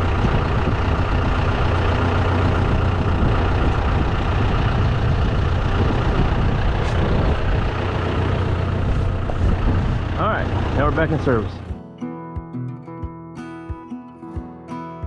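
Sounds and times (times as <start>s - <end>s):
tractor diesel engine running: 0.0s - 11.8s.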